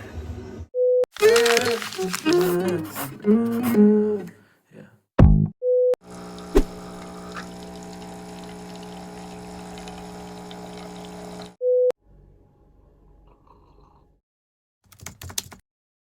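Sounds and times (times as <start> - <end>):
electrical hum: 6.1 - 11.6.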